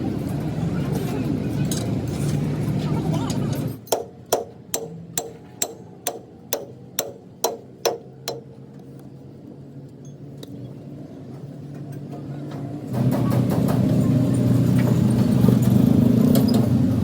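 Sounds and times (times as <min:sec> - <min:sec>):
low workshop hum: 0:00.0 - 0:17.0
hammer striking metal: 0:03.8 - 0:08.6.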